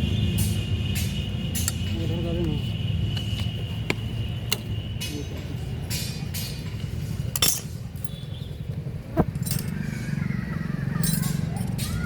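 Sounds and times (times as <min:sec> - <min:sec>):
metal tools clinking on engine parts: 0:05.9 - 0:08.3, 0:09.2 - 0:10.0, 0:11.0 - 0:12.0.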